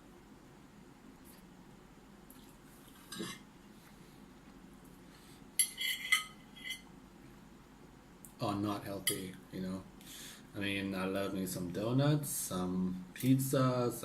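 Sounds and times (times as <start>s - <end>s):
cutlery clinking on plate: 5.6s - 6.9s.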